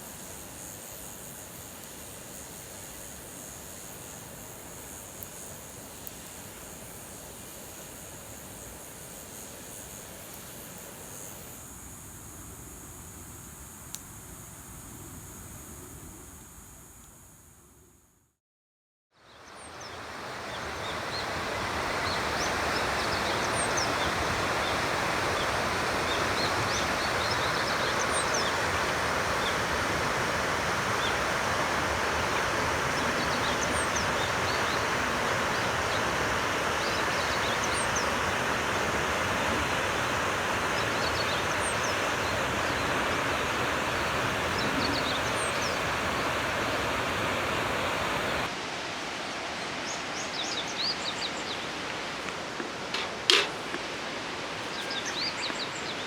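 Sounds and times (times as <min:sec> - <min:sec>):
small birds chirping: 0:19.3 - 0:48.5, 0:54.6 - 0:56.0
river water rushing: 0:19.4 - 0:56.0.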